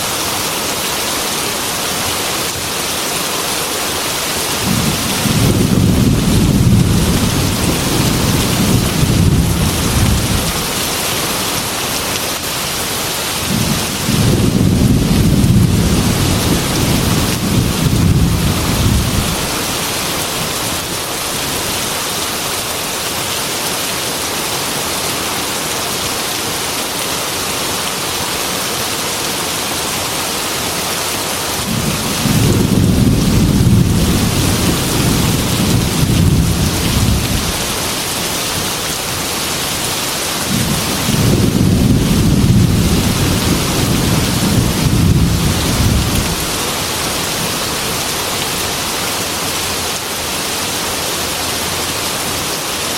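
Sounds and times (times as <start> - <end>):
heavy rain on glass window: 0.1 - 52.9
low rolling thunder: 4.6 - 11.0, 13.4 - 19.7, 31.6 - 38.8, 40.4 - 46.6.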